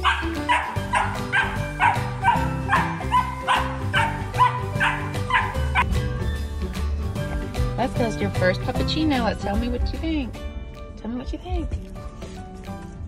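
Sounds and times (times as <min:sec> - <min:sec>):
puppy yipping: 0:00.0 - 0:06.5
background music: 0:00.0 - 0:13.0.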